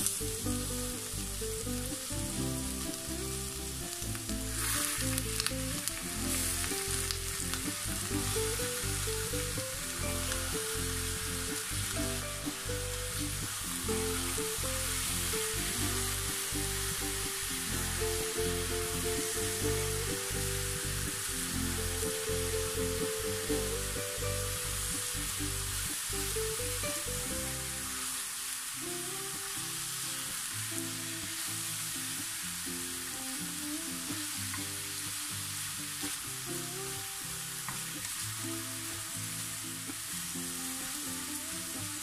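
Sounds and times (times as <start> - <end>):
background music: 0.0 - 28.2
chicken sizzling in hot oil: 0.0 - 42.0.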